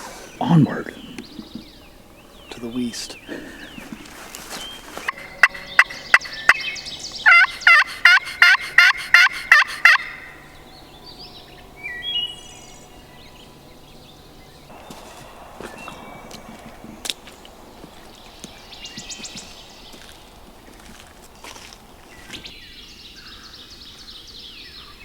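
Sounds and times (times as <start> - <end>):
distant bird calls: 0.0 - 25.0
turkey clucks and yelps: 3.1 - 10.6.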